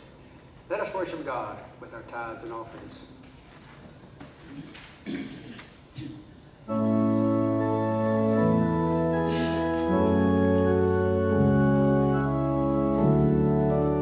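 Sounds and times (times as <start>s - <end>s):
organ playing slow chords: 6.6s - 14.0s.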